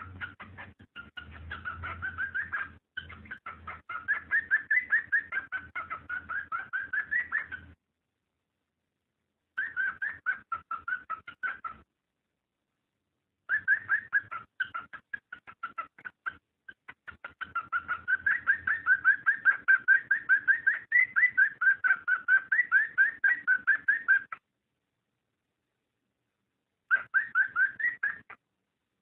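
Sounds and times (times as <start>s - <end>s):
cockatiel chirping: 0.0s - 7.8s, 9.6s - 11.9s, 13.4s - 24.4s, 26.9s - 28.4s.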